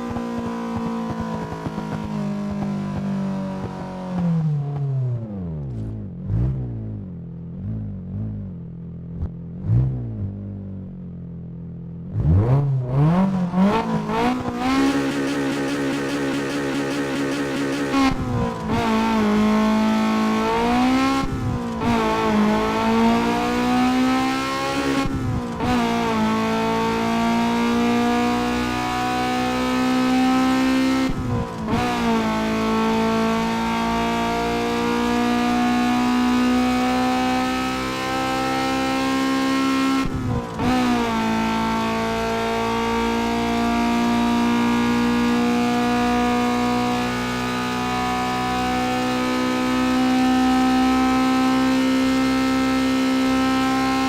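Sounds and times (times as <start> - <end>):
car engine at high revs: 0.0 - 54.0.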